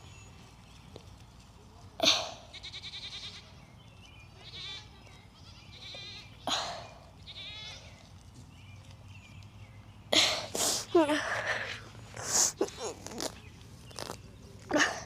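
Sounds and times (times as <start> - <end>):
goat bleating: 2.4 - 3.5, 4.4 - 6.3, 7.2 - 7.9.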